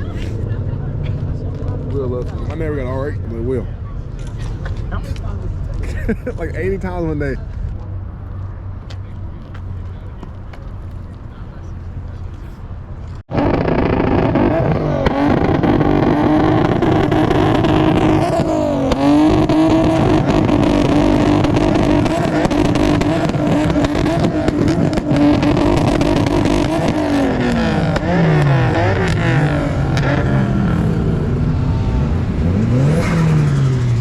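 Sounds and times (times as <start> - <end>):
car engine revving high: 13.3 - 34.0.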